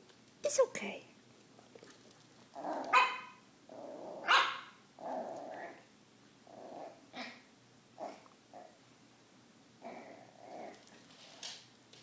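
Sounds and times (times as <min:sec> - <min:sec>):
puppy growling: 0:01.6 - 0:08.8, 0:09.8 - 0:11.1
puppy barking: 0:02.8 - 0:03.4, 0:04.2 - 0:04.8.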